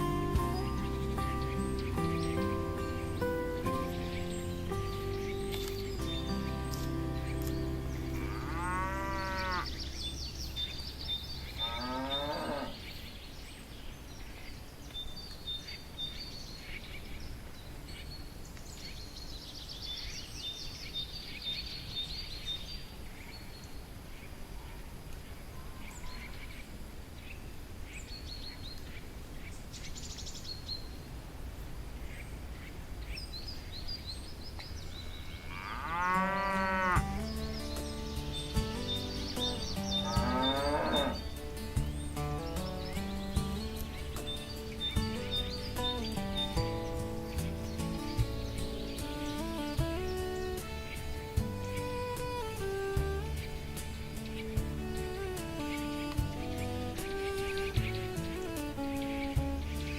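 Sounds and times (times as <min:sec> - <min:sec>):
birds chirping: 0:00.0 - 0:59.9
cattle mooing: 0:08.0 - 0:09.7, 0:11.6 - 0:12.8, 0:35.4 - 0:37.1, 0:40.0 - 0:41.3.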